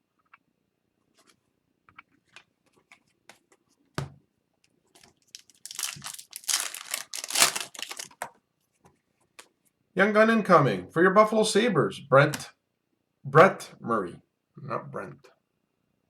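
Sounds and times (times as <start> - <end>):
wrapper crinkling and tearing: 5.0 - 8.3.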